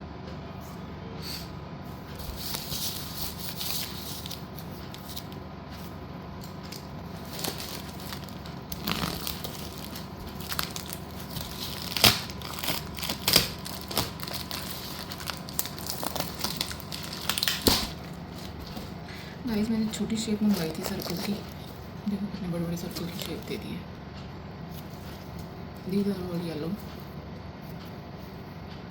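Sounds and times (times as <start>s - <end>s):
packaging crinkling and tearing: 2.2s - 5.4s, 6.5s - 21.8s, 22.9s - 23.5s.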